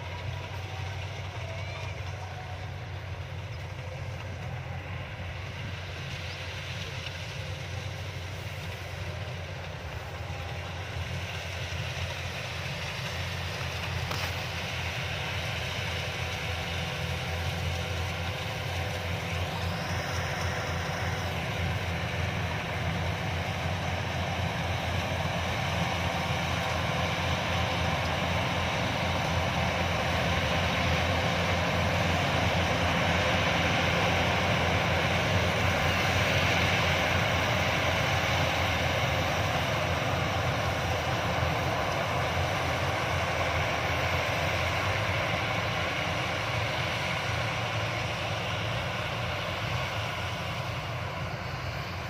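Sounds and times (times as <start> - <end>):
combine harvester running: 0.0 - 52.0.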